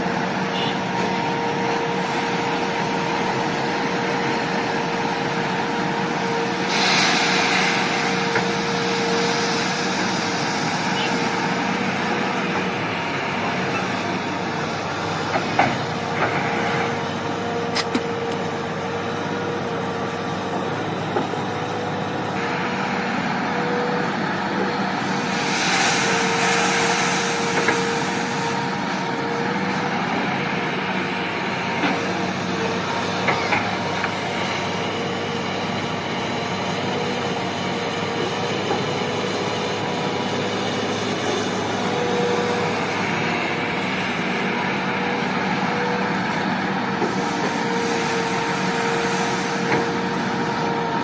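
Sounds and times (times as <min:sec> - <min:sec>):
heavy machinery humming: 0:00.0 - 0:51.0
air hissing: 0:06.5 - 0:11.6, 0:25.0 - 0:28.9.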